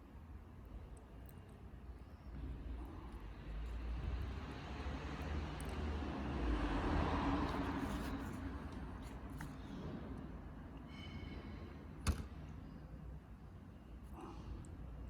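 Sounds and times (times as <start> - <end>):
passing vehicle rumbling: 3.4 - 9.0.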